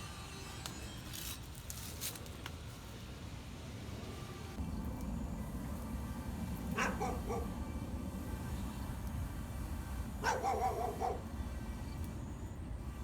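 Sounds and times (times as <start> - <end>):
dog barking: 6.8 - 7.5, 10.2 - 11.3.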